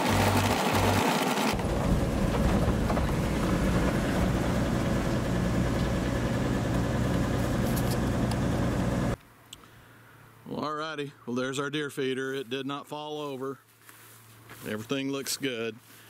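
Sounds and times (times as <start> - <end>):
vehicle engine running: 0.0 - 9.2.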